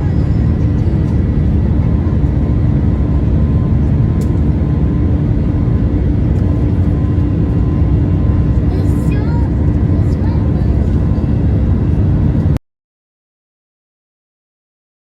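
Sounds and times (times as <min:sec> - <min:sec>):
jet engine cabin rush: 0:00.0 - 0:12.6
steady cabin hum: 0:00.0 - 0:12.6.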